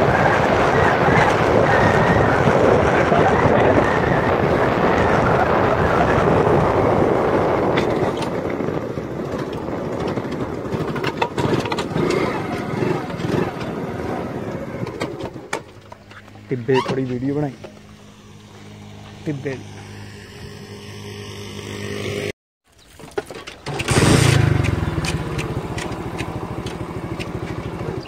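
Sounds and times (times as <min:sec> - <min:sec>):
wind buffeting microphone: 0:00.0 - 0:19.0
vehicle rumble: 0:00.0 - 0:28.0.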